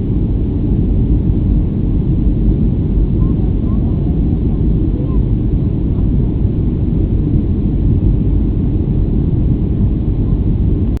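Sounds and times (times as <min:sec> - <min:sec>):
airliner engines rumbling: 0:00.0 - 0:11.0.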